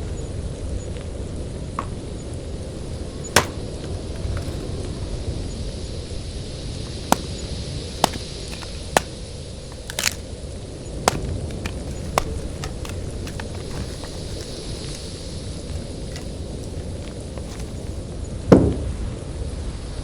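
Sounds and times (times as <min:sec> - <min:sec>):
sharp knocks: 0:02.8 - 0:04.8, 0:08.0 - 0:09.1, 0:09.7 - 0:10.2, 0:11.1 - 0:15.2.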